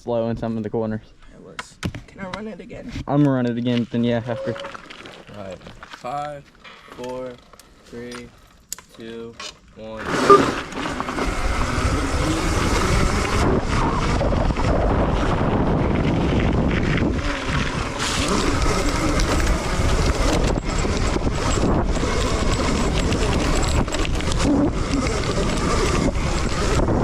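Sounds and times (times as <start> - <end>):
dirt bike motor running: 9.8 - 27.0
wind buffeting microphone: 11.1 - 27.0.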